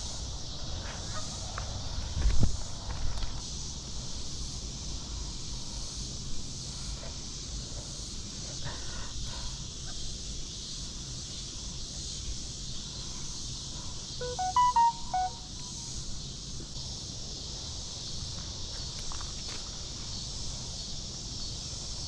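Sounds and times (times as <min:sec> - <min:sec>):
electronic beeps at changing pitches: 0:14.2 - 0:15.8.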